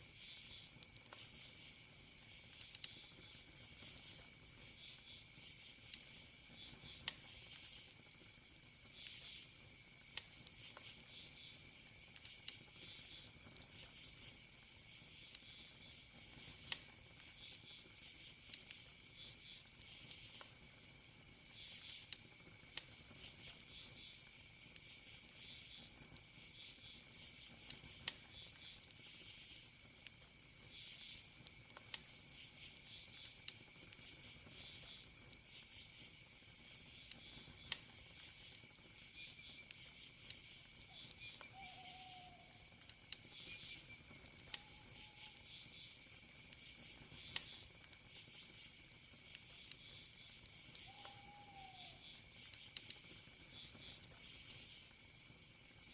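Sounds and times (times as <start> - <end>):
campfire crackling: 0.0 - 55.9
cricket drone: 0.0 - 55.9
wood popping in fire: 0.0 - 55.9
pulsing insect chirps: 32.3 - 54.9
short faint calls: 40.8 - 42.7, 50.8 - 52.2.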